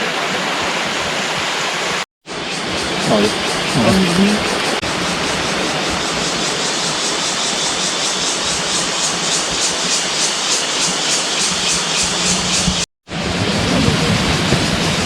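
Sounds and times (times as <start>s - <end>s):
waterfall rushing: 0.0s - 12.2s
insects pulsing: 2.4s - 12.8s.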